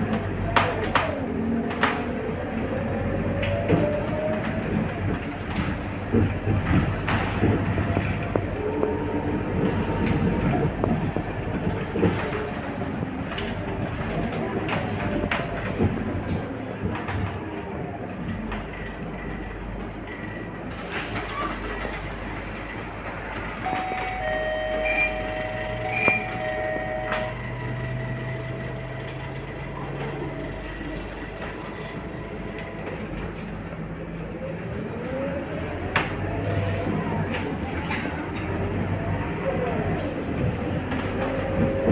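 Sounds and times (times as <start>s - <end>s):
bus engine and road drone: 0.0s - 41.9s
steady high tone: 23.6s - 29.0s.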